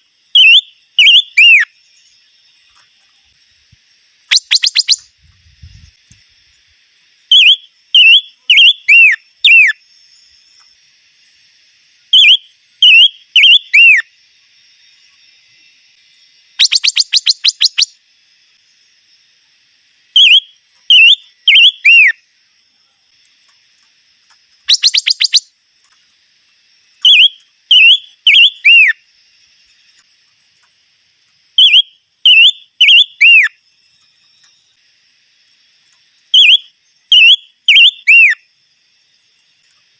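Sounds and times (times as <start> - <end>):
bird rapid trill: 0.3 - 2.1, 4.2 - 5.9, 7.3 - 9.8, 12.1 - 14.1, 16.6 - 18.0, 20.1 - 22.2, 24.5 - 26.0, 26.9 - 29.0, 31.5 - 34.7, 36.3 - 38.4
bird whistling song: 0.3 - 2.2, 4.2 - 6.0, 7.2 - 9.8, 12.1 - 14.1, 16.5 - 18.0, 20.1 - 22.2, 24.6 - 25.6, 26.9 - 29.0, 31.5 - 34.8, 36.2 - 38.4.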